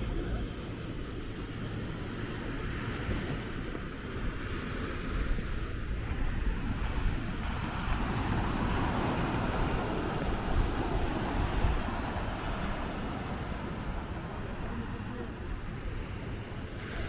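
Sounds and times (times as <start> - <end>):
surf washing onto beach: 0.0 - 17.0
wind buffeting microphone: 0.0 - 17.0.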